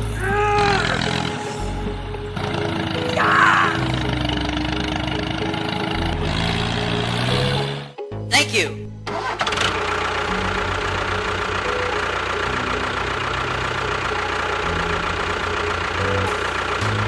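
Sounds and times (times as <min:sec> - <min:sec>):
motor running with rattle: 0:03.8 - 0:07.9, 0:09.1 - 0:17.0.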